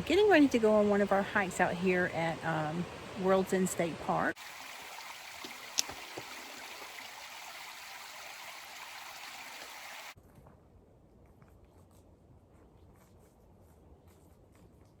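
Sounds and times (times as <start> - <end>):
stream rushing: 0.3 - 10.2.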